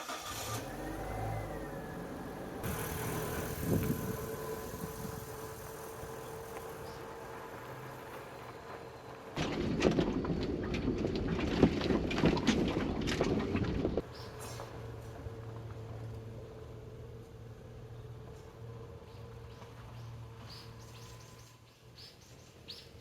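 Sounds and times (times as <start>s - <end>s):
engine humming: 0.0s - 23.0s
knocking and rattling: 9.4s - 14.0s.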